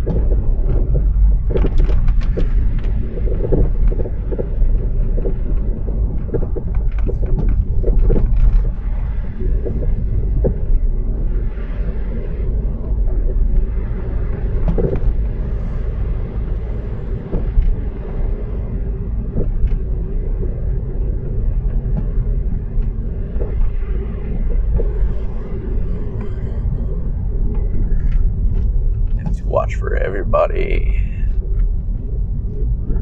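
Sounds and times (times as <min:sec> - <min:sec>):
road and engine rumble: 0:12.4 - 0:33.0.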